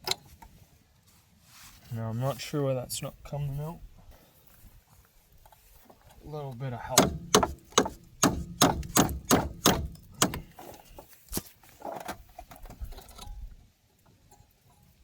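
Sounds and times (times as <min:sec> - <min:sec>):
hammer blows on metal: 0:06.9 - 0:10.6.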